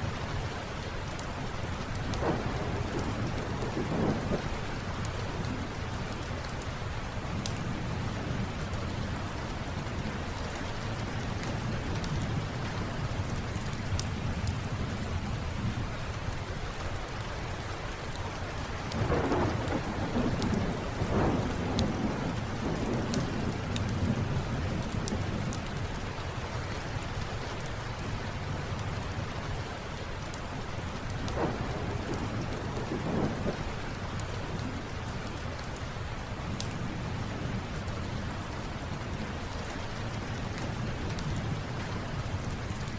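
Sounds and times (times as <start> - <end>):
steady rain: 0.0 - 42.9
thunder rumbling: 2.0 - 6.0, 18.9 - 25.8, 31.2 - 35.4.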